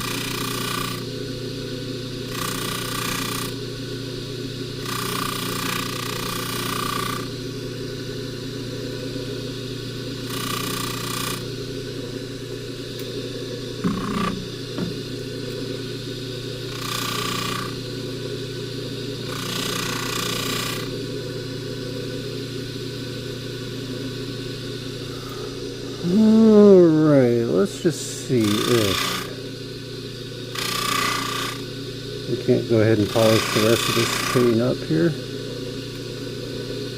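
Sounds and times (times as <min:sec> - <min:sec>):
chain hissing against buffing wheel: 0:00.0 - 0:01.1, 0:02.3 - 0:03.6, 0:04.8 - 0:07.3, 0:25.1 - 0:29.5, 0:30.5 - 0:31.7, 0:32.3 - 0:35.2
buffing machine running: 0:00.0 - 0:22.4, 0:25.0 - 0:36.9
knocks: 0:13.8 - 0:15.0.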